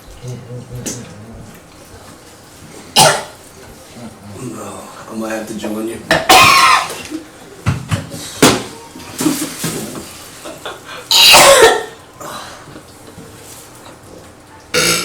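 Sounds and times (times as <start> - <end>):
person coughing and gagging: 3.0 - 3.4, 6.1 - 7.1, 11.1 - 12.0.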